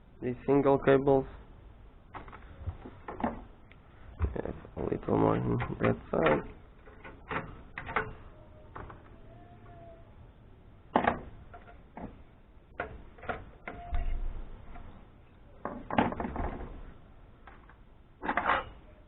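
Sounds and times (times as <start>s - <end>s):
tools and metal parts clicking: 18.2s - 18.8s.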